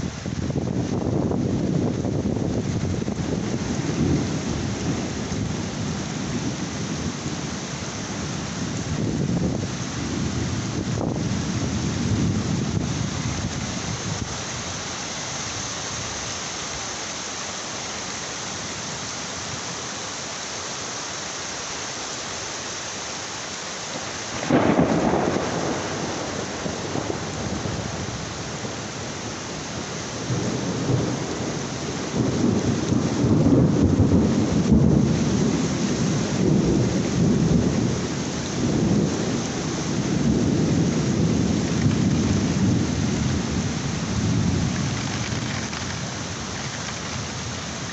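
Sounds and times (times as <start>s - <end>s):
rolling thunder rumble: 0.0s - 14.6s, 24.3s - 47.9s
heavy rain falling: 0.0s - 47.9s
thunder crack: 24.4s - 28.0s, 30.3s - 35.6s.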